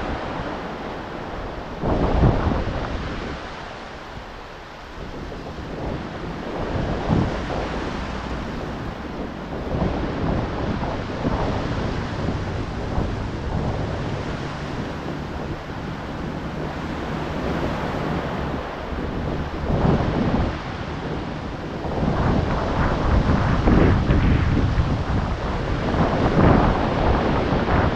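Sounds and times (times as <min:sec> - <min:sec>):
ocean waves breaking: 0:00.0 - 0:27.9
wind buffeting microphone: 0:00.0 - 0:27.9.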